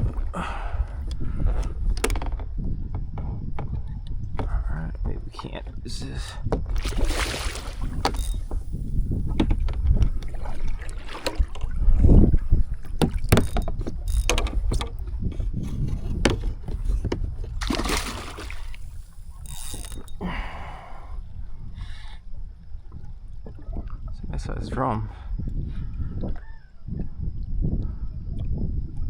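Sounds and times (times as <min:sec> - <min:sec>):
wind buffeting microphone: 0:00.0 - 0:29.0
gear knocking against hull: 0:07.8 - 0:17.8.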